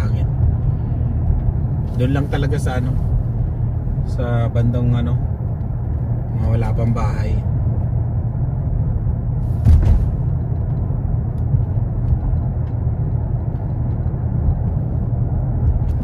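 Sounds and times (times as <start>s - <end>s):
car cabin road rumble: 0.0s - 16.0s
brief thump or rustle: 9.5s - 10.3s.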